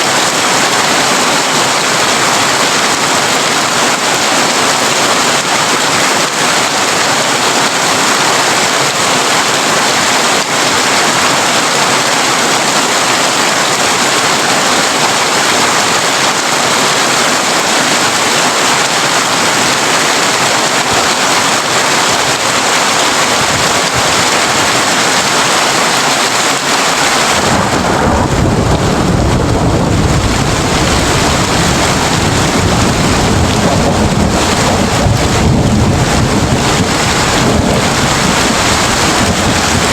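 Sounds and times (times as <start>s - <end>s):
heavy rain on a tin roof: 0.0s - 39.9s
thunder rumbling: 27.0s - 39.9s.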